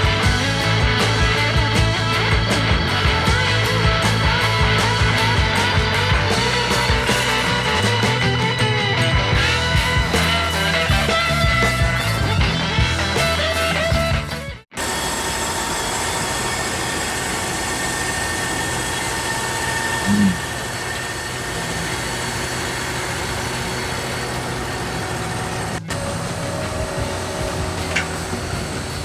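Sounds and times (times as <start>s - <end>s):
milling machine cutting metal: 14.8s - 29.0s.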